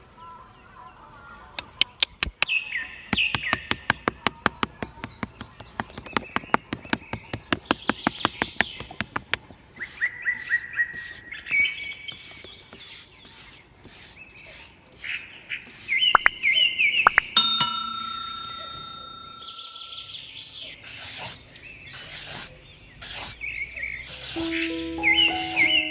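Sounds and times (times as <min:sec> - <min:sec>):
small birds chirping: 0:04.4 - 0:17.4.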